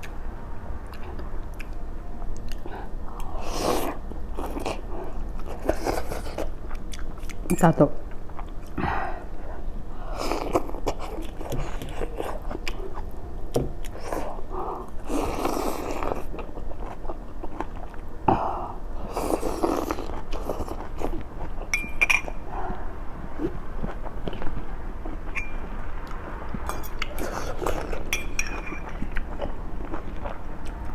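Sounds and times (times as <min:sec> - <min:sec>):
person chewing noodles: 0:00.8 - 0:07.5, 0:08.1 - 0:13.2, 0:13.8 - 0:30.9.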